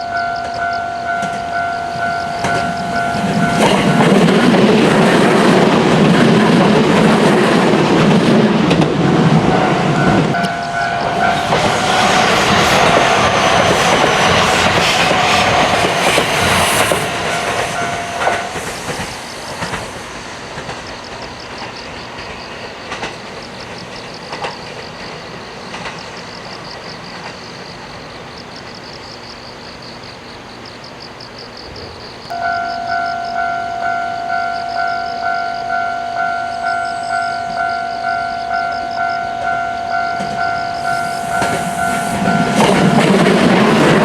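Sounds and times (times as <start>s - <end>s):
steady high tone: 0.0s - 6.7s, 9.0s - 19.8s, 32.3s - 44.0s
train passing: 0.0s - 29.5s, 31.7s - 44.0s.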